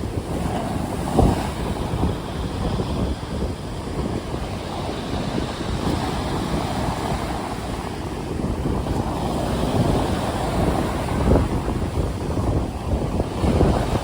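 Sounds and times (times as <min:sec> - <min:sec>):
waves breaking: 0:00.0 - 0:14.0
wind: 0:00.0 - 0:14.0.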